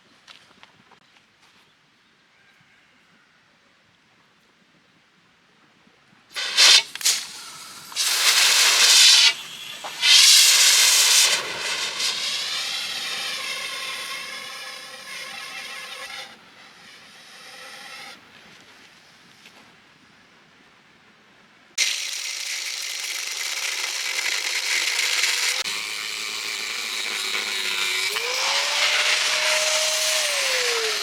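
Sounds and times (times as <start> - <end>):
hot steel sizzling in liquid: 6.4 - 16.3.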